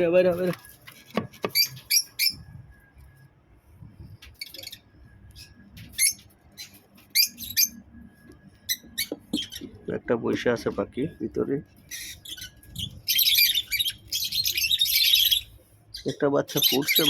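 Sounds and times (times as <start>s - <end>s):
lovebirds squawking: 1.4s - 2.4s, 4.4s - 7.8s, 8.6s - 10.0s, 11.8s - 17.0s.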